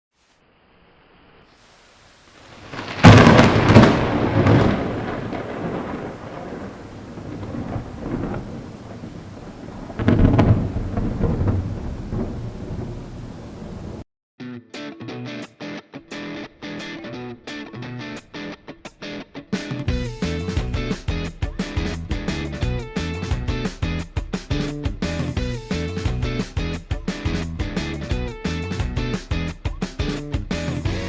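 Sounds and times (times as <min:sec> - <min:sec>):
thunder cracking and rumbling: 0:02.4 - 0:14.0.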